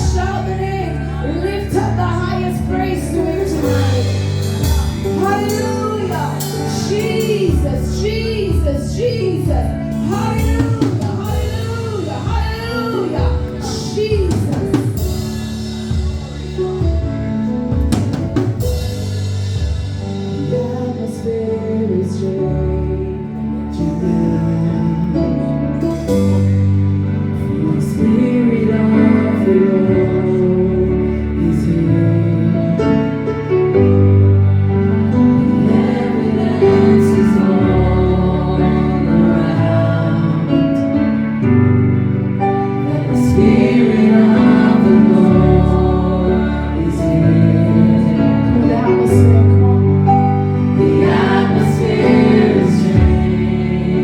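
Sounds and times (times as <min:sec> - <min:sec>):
gospel choir singing: 0:00.0 - 0:16.6, 0:27.2 - 0:33.7, 0:34.5 - 0:54.0
drum kit: 0:00.0 - 0:21.3, 0:34.9 - 0:40.0, 0:42.4 - 0:54.0
keyboard chords: 0:00.0 - 0:54.0.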